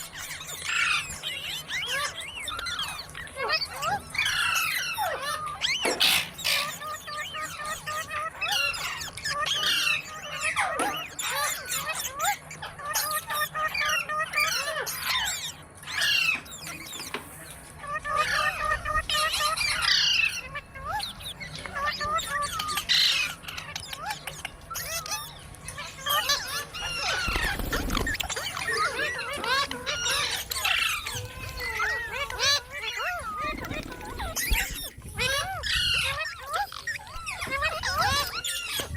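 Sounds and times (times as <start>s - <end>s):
parakeets squawking: 0.0s - 38.9s.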